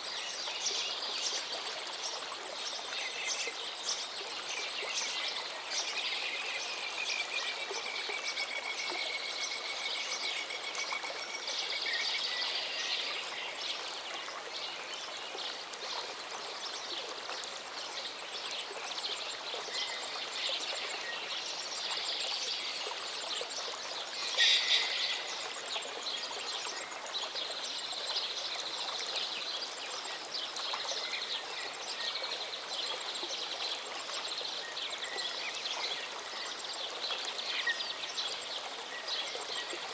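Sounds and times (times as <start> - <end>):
birds singing: 24.1 - 25.5.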